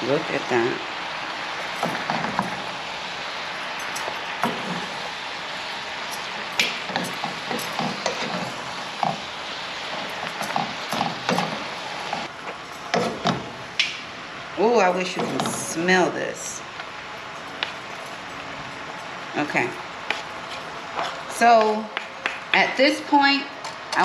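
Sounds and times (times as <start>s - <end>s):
food sizzling in a hot pan: 0.0s - 14.1s
wooden spoons scraping and knocking pan: 3.8s - 5.2s, 6.0s - 13.6s, 15.0s - 15.8s, 20.0s - 22.4s.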